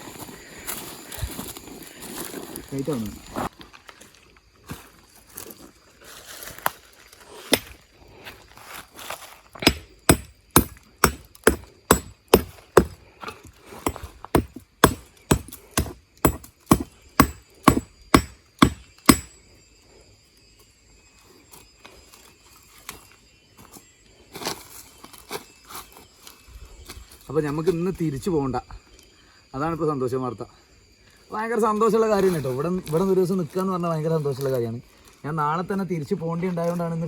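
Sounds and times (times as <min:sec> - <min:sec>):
hand tool striking: 0:07.5 - 0:07.8, 0:09.6 - 0:19.4.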